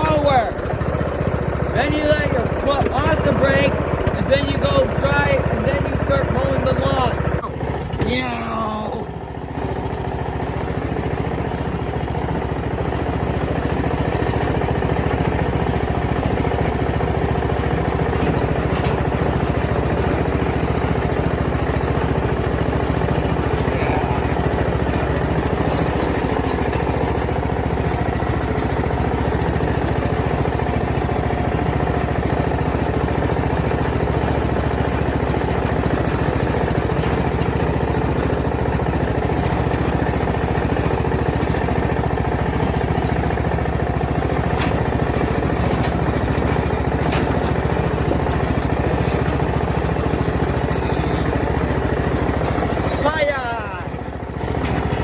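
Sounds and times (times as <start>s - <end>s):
lawnmower engine running: 0.0s - 55.0s.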